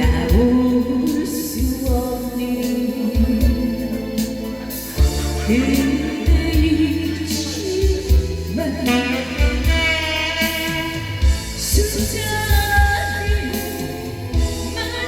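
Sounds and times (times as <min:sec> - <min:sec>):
bass line and drum beat: 0:00.0 - 0:15.0
electronic keyboard backing: 0:00.0 - 0:15.0
woman singing a ballad: 0:00.0 - 0:15.0.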